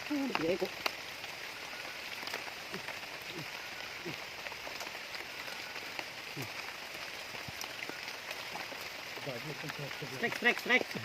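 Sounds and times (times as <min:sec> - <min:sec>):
rain drops ticking: 0:00.0 - 0:11.0
steady rain falling: 0:00.0 - 0:11.0.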